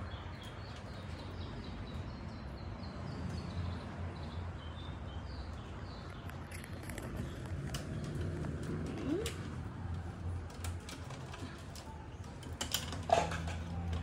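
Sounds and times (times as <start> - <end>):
bird chirping: 0.0 - 9.5
low outdoor hum: 0.0 - 14.0.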